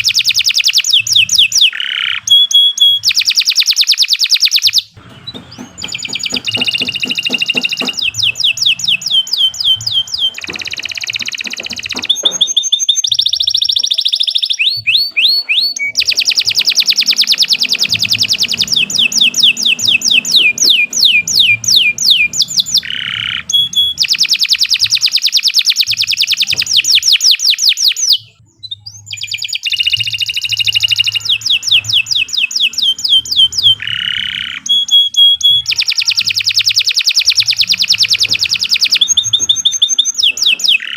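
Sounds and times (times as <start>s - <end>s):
canary trilling: 0.0s - 40.9s.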